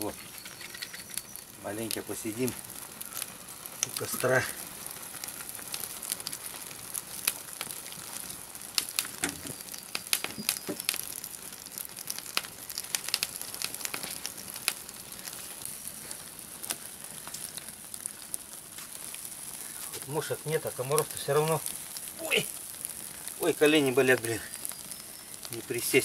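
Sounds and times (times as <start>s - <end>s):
campfire crackling: 0.0s - 26.0s
steady high hiss: 0.0s - 26.0s
sharp pops: 5.2s - 15.6s.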